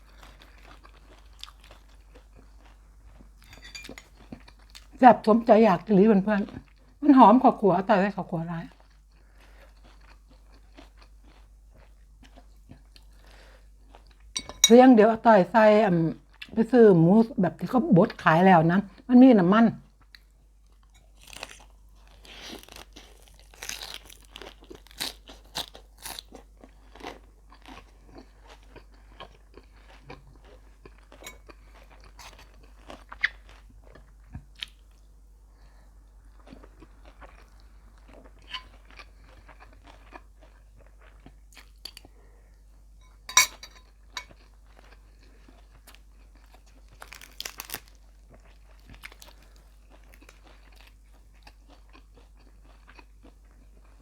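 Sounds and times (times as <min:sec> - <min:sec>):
person chewing and crunching: 0:00.0 - 0:05.0, 0:08.7 - 0:14.8, 0:19.9 - 0:35.0, 0:36.2 - 0:54.0.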